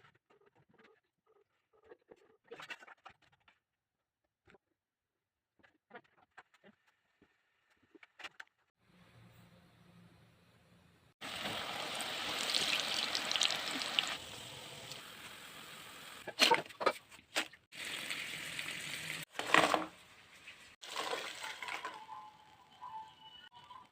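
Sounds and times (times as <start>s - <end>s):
dough deep-frying in hot oil: 11.2s - 16.3s, 17.7s - 23.9s.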